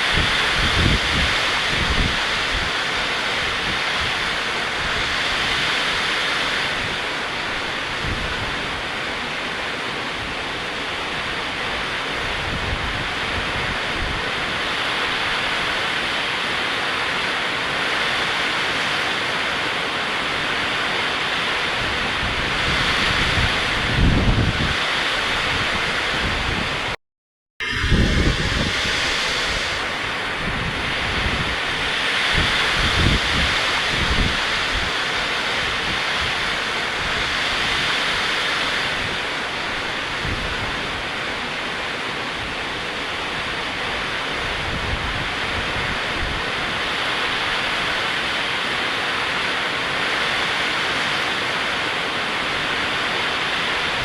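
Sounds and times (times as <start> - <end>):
wind buffeting microphone: 0.0 - 8.9, 21.6 - 27.0, 27.6 - 41.4
heavy rain pouring: 0.0 - 27.0, 27.6 - 54.0.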